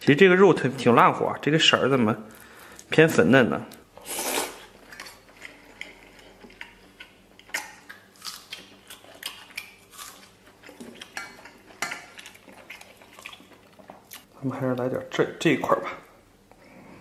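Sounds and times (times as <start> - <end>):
person chewing with wet smacks: 4.6 - 14.9.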